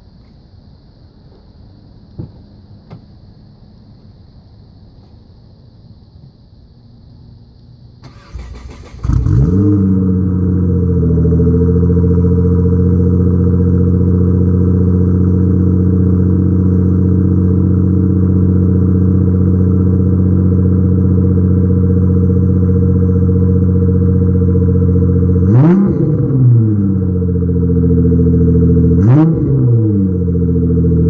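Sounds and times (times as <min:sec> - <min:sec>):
car engine idling: 0:07.5 - 0:31.0.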